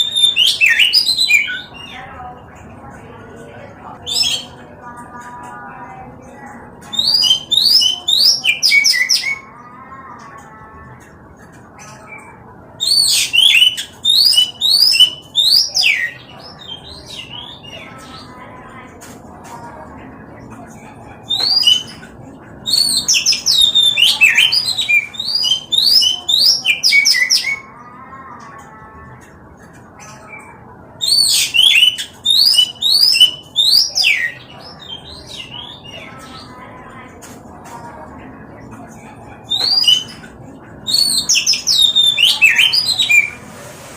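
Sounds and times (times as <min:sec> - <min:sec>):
bird singing whistled notes: 0:06.9 - 0:09.4, 0:12.8 - 0:16.2, 0:31.0 - 0:34.4, 0:40.9 - 0:43.4.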